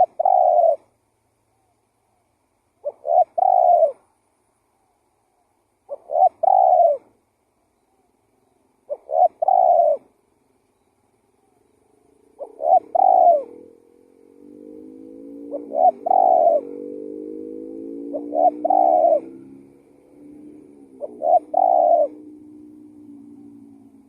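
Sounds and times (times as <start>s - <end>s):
dove cooing: 0.0s - 0.9s, 2.8s - 4.1s, 5.9s - 7.1s, 8.8s - 10.2s, 11.4s - 24.0s
low droning tone: 13.4s - 24.0s.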